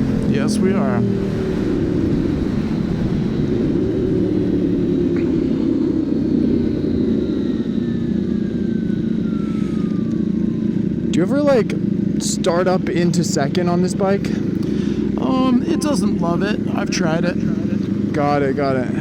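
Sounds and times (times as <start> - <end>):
faint falling whine: 0.0 - 14.4.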